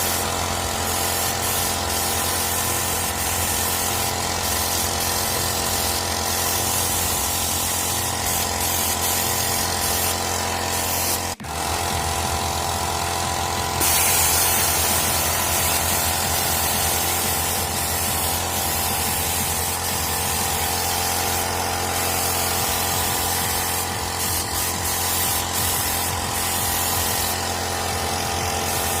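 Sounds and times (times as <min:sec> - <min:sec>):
spray gun hissing: 0:00.0 - 0:29.0
motor hum: 0:09.2 - 0:24.8.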